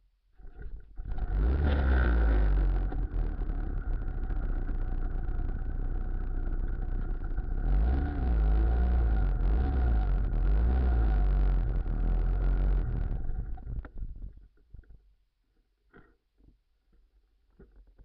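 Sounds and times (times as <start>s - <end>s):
trike engine running: 0.7s - 14.2s
steady whine: 1.0s - 14.2s.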